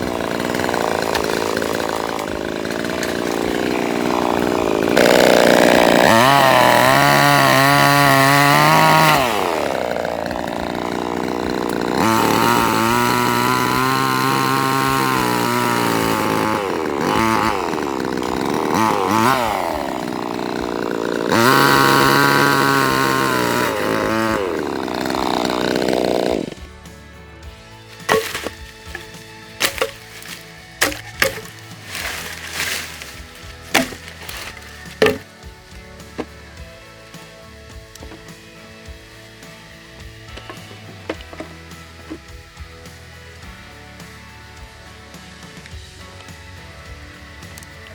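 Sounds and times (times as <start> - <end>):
angle grinder cutting steel: 0.0 - 26.7, 27.8 - 35.4, 39.1 - 42.3.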